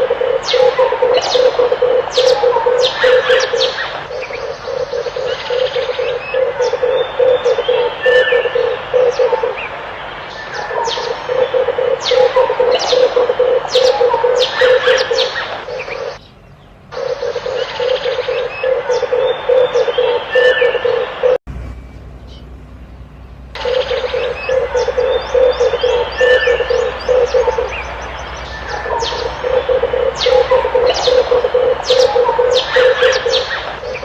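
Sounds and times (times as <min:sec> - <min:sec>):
doves cooing: 0:00.0 - 0:16.2, 0:17.0 - 0:21.4, 0:23.6 - 0:34.0
low hum: 0:00.0 - 0:34.0
small birds chirping: 0:00.0 - 0:34.0.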